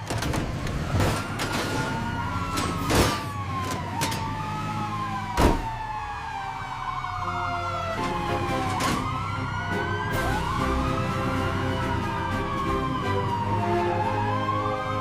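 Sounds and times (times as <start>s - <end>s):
emergency siren wailing: 0.0s - 15.0s.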